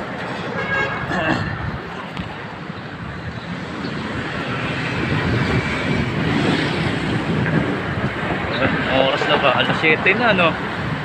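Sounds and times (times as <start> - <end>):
road traffic: 0.0 - 11.0
wind rushing: 2.9 - 11.0.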